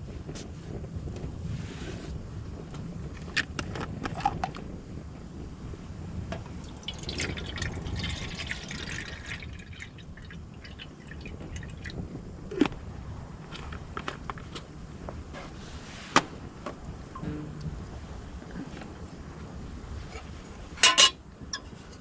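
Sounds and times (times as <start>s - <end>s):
low wind rumble: 0.0s - 22.0s
water pouring and dripping: 6.5s - 12.0s.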